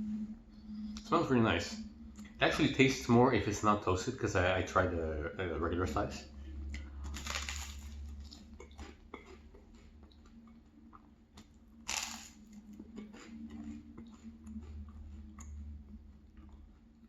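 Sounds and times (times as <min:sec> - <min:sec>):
chewing crunchy toast: 0:06.8 - 0:17.0.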